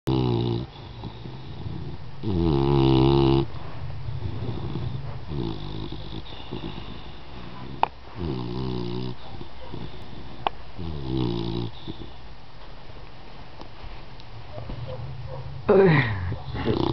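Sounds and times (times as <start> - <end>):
dog snoring: 0.1 - 12.2, 16.3 - 16.9.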